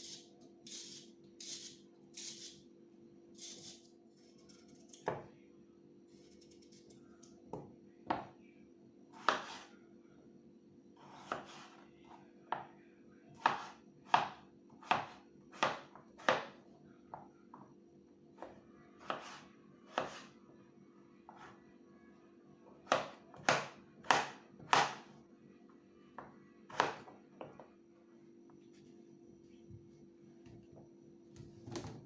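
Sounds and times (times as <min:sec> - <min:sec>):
faint steady hum: 0:00.0 - 0:32.0
knife chopping on cutting board: 0:09.2 - 0:09.7, 0:11.0 - 0:11.8, 0:13.4 - 0:16.6, 0:19.0 - 0:20.3, 0:22.8 - 0:25.1.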